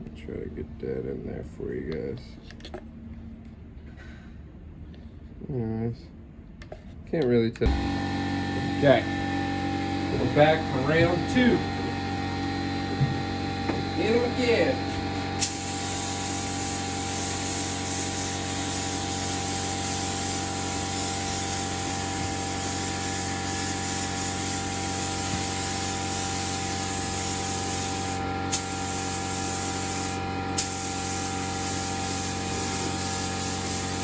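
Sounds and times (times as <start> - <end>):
paint spray gun hissing: 7.7 - 34.0.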